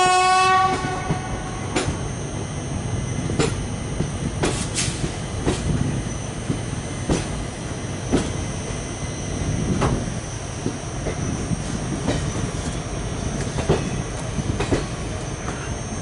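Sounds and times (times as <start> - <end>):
train wheels rumbling on rail: 0.0 - 16.0
wheels clacking over rail joints: 13.4 - 15.7.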